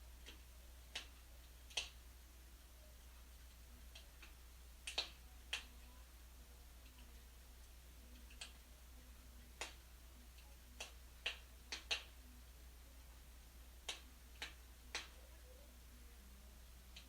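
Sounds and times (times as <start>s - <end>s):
wood fire crackling: 2.6s - 5.9s, 6.8s - 12.6s.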